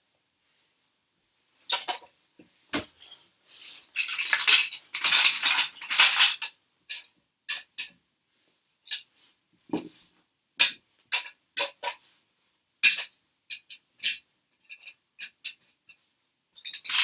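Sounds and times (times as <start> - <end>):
plastic toy bricks clattering: 4.0 - 7.7, 16.7 - 17.0.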